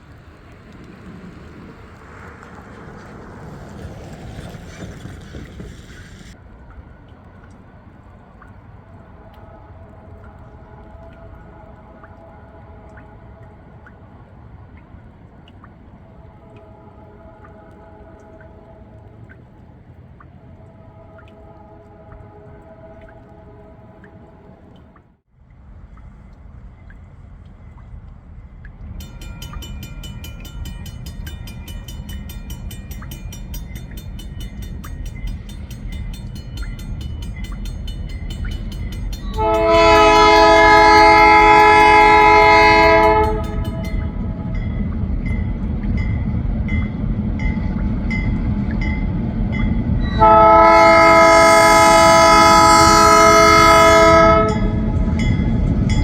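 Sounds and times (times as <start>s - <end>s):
locomotive engine rumble: 0.0s - 25.0s, 25.6s - 56.0s
train air horn blasts: 16.2s - 19.3s, 20.6s - 25.0s, 36.2s - 44.9s, 50.0s - 56.0s
bell ringing rapidly: 29.0s - 44.0s.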